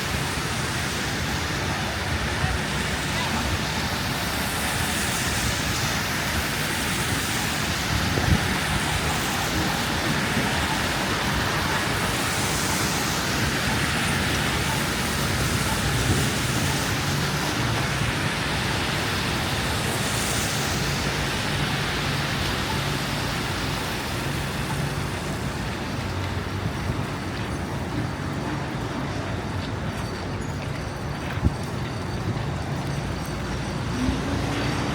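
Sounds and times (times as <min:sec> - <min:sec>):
traffic hiss: 0:00.0 - 0:34.9
wind noise: 0:00.0 - 0:34.9.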